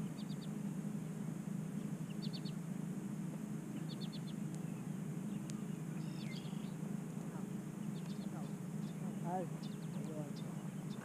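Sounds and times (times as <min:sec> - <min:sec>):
small bird chirping: 0:00.0 - 0:00.6, 0:01.8 - 0:02.6, 0:03.7 - 0:11.0
steady low hum: 0:00.0 - 0:11.0.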